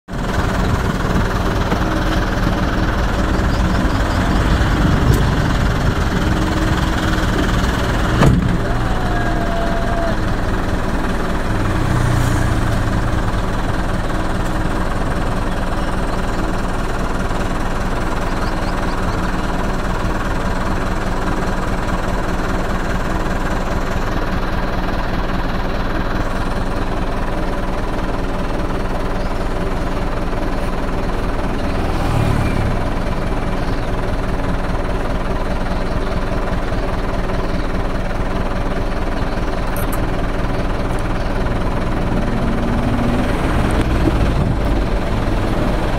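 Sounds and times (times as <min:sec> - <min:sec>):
engine idling: 0:00.1 - 0:45.9.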